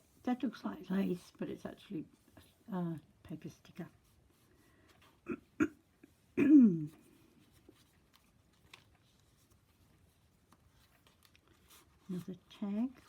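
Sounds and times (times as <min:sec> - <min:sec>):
woman clearing her throat: 0:05.2 - 0:05.8, 0:06.4 - 0:07.0
woman coughing: 0:05.2 - 0:05.8, 0:06.4 - 0:07.0.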